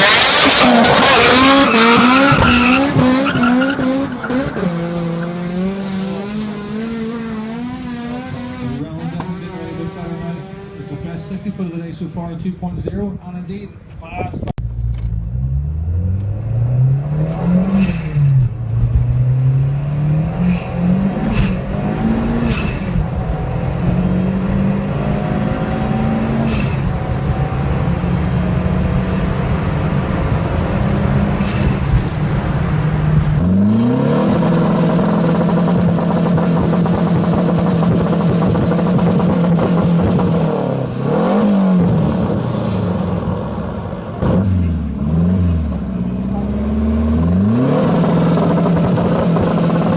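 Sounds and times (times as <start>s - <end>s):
turbo car engine accelerating: 0.0s - 11.7s, 14.6s - 49.9s
sharp exhaust cracks: 14.6s - 33.5s.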